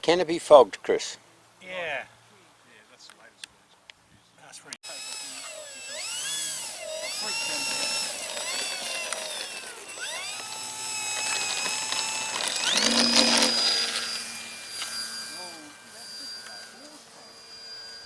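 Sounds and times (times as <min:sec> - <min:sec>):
model plane motor whining: 0:04.8 - 0:18.0.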